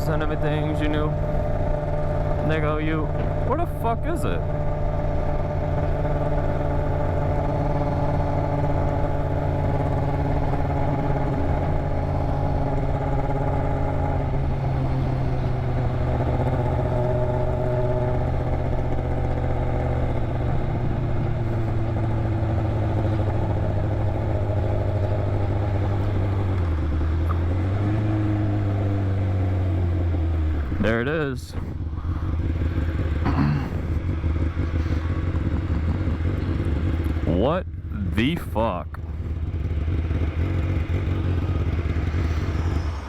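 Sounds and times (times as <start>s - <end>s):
man talking: 0.0s - 1.2s, 2.4s - 4.4s, 30.8s - 31.7s, 37.2s - 39.0s
motorcycle engine running: 0.0s - 43.0s.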